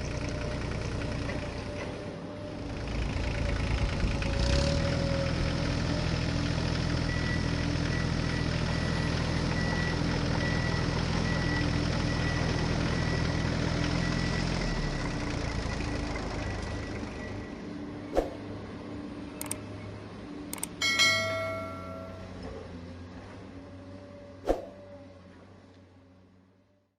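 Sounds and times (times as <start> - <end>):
sharp clicks: 19.4 - 19.6, 20.6 - 20.8
short ringing chime: 20.6 - 22.6.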